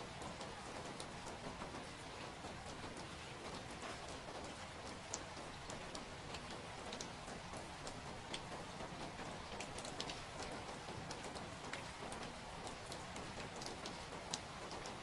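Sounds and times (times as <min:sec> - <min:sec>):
rain hiss: 0:00.0 - 0:15.0.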